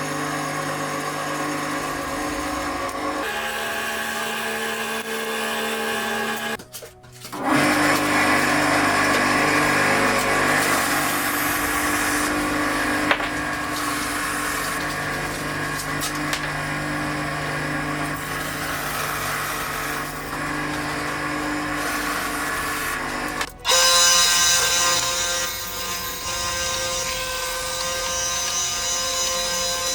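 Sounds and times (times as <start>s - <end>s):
bandsaw motor hum: 0.0s - 6.6s, 7.3s - 29.9s
saw blade rasping through wood: 0.0s - 6.6s, 7.2s - 29.9s.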